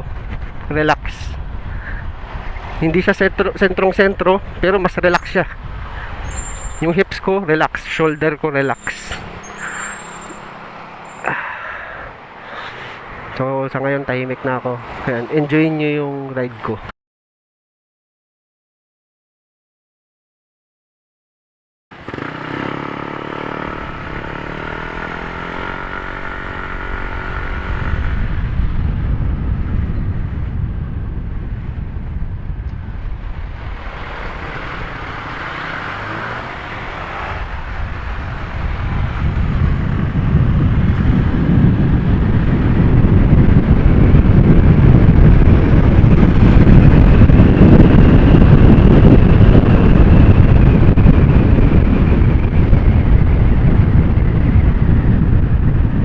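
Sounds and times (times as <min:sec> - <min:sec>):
wind buffeting microphone: 0:00.0 - 0:14.2, 0:22.1 - 0:56.0
scooter engine pulling away: 0:22.0 - 0:27.6.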